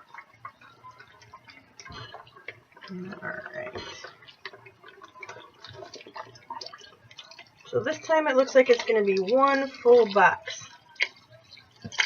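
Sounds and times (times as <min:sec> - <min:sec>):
liquid pouring and splashing: 0:00.0 - 0:12.0.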